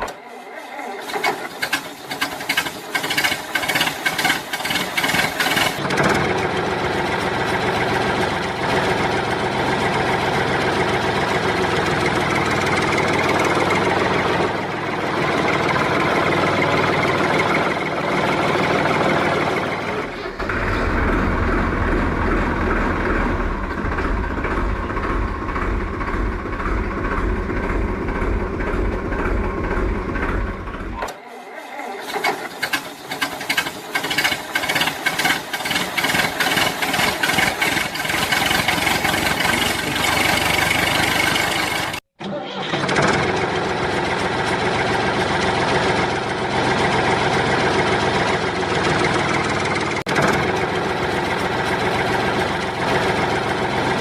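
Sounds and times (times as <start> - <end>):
engine-like mechanical running: 0.0 - 54.0
deep rumble: 19.6 - 31.0.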